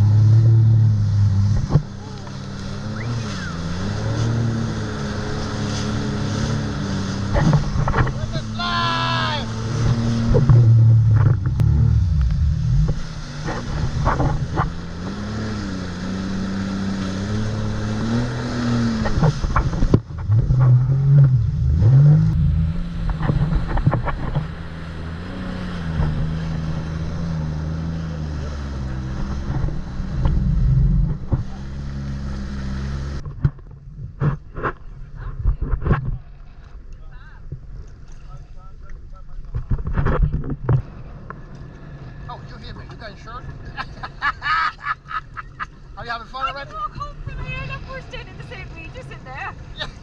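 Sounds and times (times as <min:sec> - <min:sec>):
jet ski engine: 0:00.0 - 0:35.2, 0:37.6 - 0:50.0
water slapping against hull: 0:01.5 - 0:08.6, 0:09.5 - 0:20.9.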